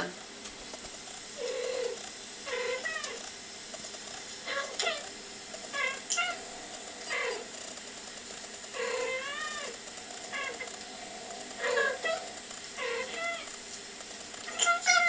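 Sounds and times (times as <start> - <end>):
cats meowing: 1.4 - 3.2, 4.4 - 5.1, 5.7 - 7.5, 8.7 - 10.8, 11.6 - 13.5, 14.4 - 15.0.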